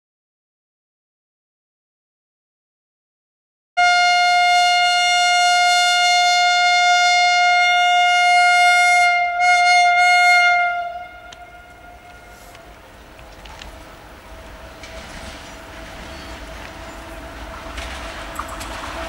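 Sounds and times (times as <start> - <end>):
train air horn blast: 3.8 - 13.1.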